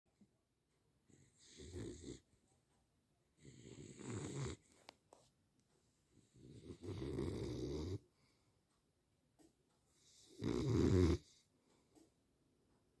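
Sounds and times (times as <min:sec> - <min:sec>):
dog snoring: 0:01.1 - 0:02.3, 0:03.4 - 0:04.8, 0:06.2 - 0:08.1, 0:10.0 - 0:11.5.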